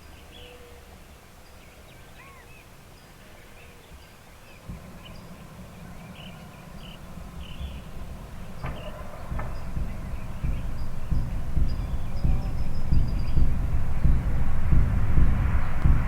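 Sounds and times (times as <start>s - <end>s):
birds chirping: 0.0s - 16.0s
low outdoor rumble: 4.5s - 16.0s.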